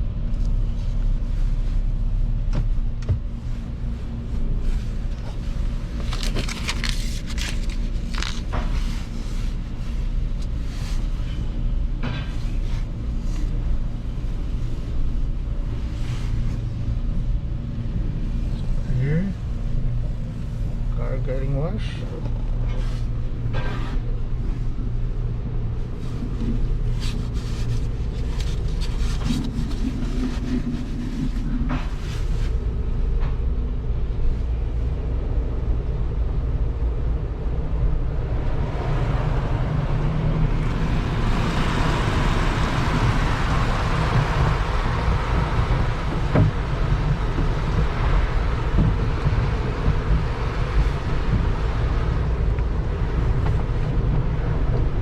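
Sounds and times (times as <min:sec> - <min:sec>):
car wash rumble: 0:00.0 - 0:55.0
water spraying over car: 0:40.5 - 0:54.0.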